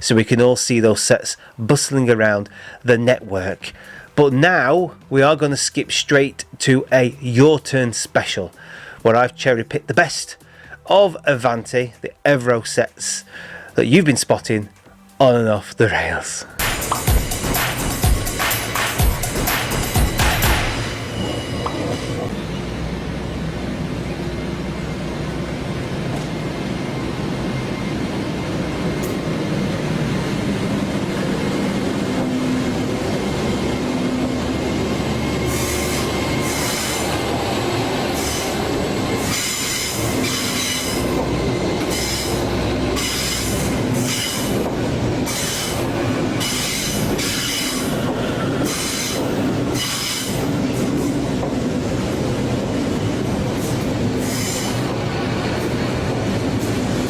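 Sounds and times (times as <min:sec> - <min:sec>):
train rumbling past: 0:16.5 - 0:57.0
wheel squeal: 0:34.9 - 0:37.4, 0:38.1 - 0:44.7, 0:45.3 - 0:51.1, 0:53.6 - 0:54.9.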